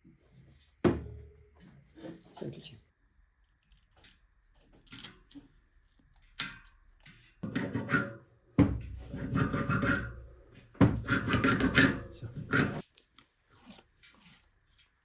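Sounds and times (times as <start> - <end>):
filing on a workpiece: 7.4 - 8.3, 8.9 - 12.8.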